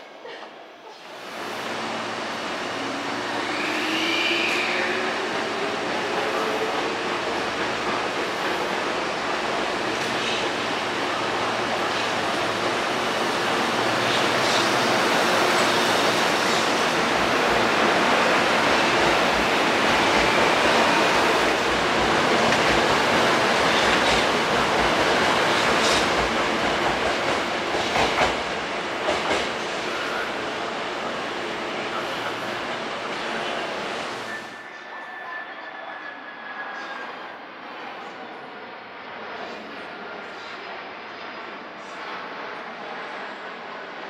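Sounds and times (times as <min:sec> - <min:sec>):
train wheels rolling on track: 0:01.6 - 0:34.3.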